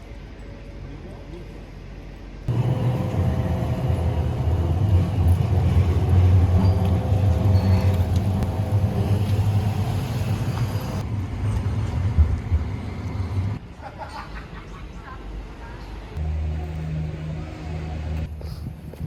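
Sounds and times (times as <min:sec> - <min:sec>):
motor vehicle rumble: 0:02.5 - 0:13.7.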